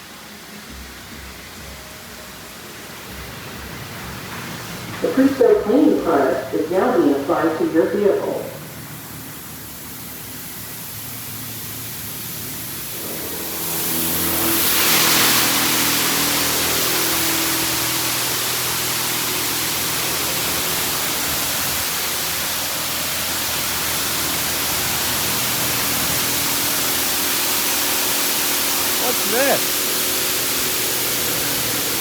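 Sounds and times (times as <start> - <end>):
machine hum: 3.0 - 32.0
car wash spray hissing: 8.4 - 32.0.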